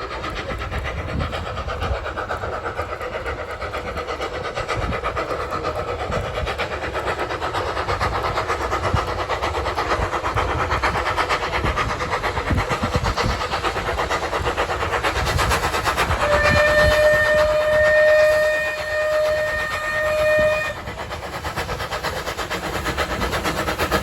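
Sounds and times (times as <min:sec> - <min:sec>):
train running rhythmically: 0:00.0 - 0:24.0
train whistle: 0:16.1 - 0:20.9.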